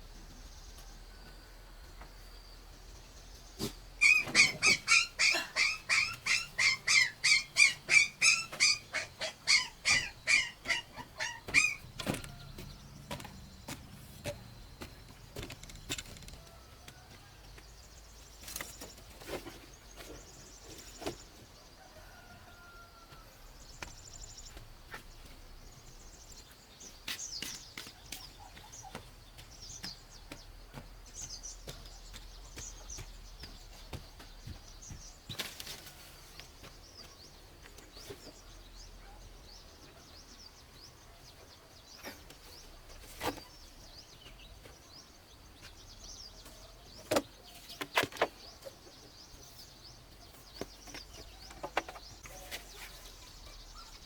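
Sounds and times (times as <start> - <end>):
farm animal calling: 3.6 - 13.2
faint bird chirps: 21.8 - 54.0.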